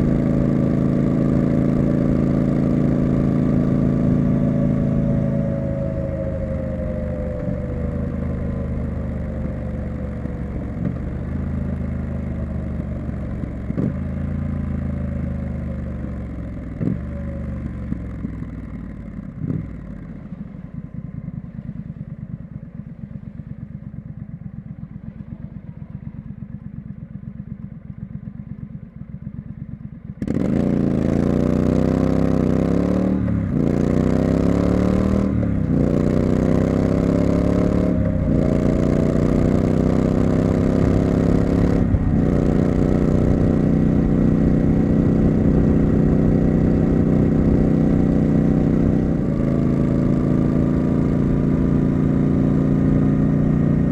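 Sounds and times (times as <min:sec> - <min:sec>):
motorcycle engine idling: 0:00.0 - 0:30.4
motorcycle accelerating through gears: 0:00.0 - 0:53.9.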